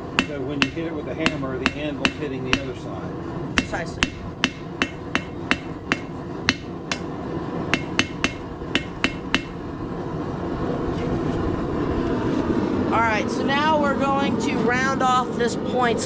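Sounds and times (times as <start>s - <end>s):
hammer striking steel on anvil: 0.0s - 2.8s, 3.6s - 7.1s, 7.7s - 9.6s
steady rushing noise: 0.0s - 15.2s.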